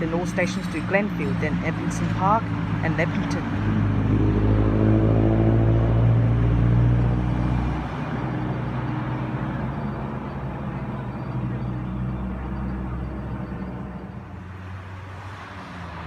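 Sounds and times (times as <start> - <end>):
electric train traction motors humming: 6.5 - 14.9.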